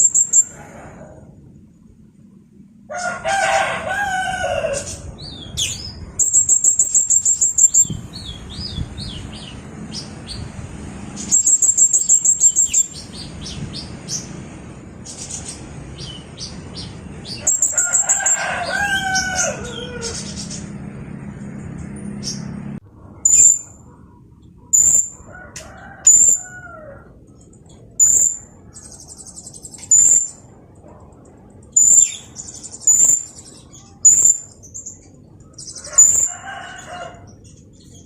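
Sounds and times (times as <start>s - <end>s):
sharp bird chirps: 0.0s - 0.6s, 5.3s - 8.9s, 11.2s - 13.4s, 23.2s - 23.8s, 24.7s - 25.2s, 28.0s - 30.4s, 31.7s - 35.0s
lower bird calls: 0.0s - 1.2s, 11.2s - 14.3s, 23.2s - 25.3s, 26.1s - 30.5s, 31.7s - 36.3s.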